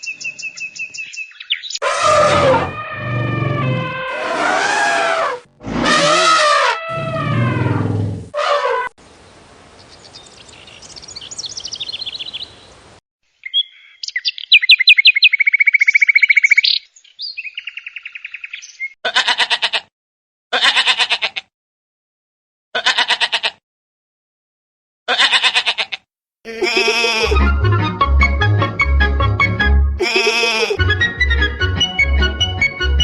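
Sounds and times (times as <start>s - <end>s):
goat or sheep bleating: 19.1s - 19.9s, 20.6s - 21.5s, 22.8s - 23.6s, 25.1s - 27.4s, 30.0s - 30.8s.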